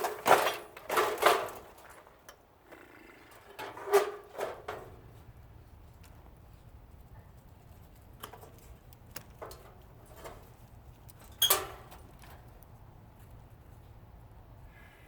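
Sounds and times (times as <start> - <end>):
metal clinks and knocks: 8.2 - 12.6.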